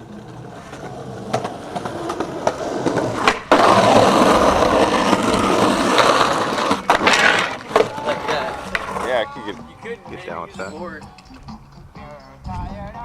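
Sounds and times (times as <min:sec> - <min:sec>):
skateboard wheels clicking on seams: 0:00.0 - 0:09.2
skateboard wheels rolling: 0:00.0 - 0:11.8.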